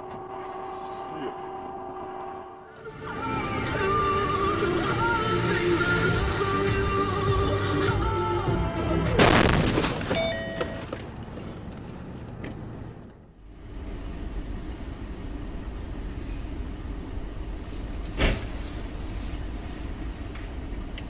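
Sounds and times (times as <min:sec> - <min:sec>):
music: 0:02.8 - 0:09.6
vehicle road and engine noise: 0:02.8 - 0:21.0
loud crash bang: 0:09.2 - 0:10.3.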